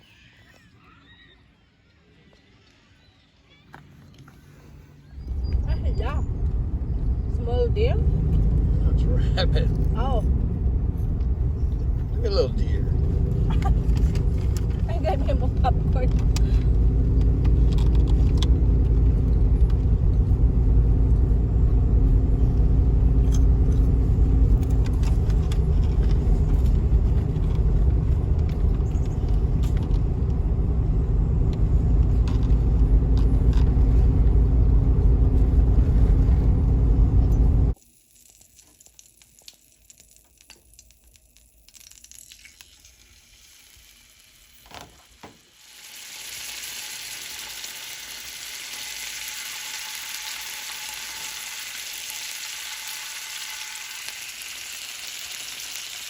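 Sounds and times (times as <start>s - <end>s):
car road noise rumble: 5.0s - 37.8s.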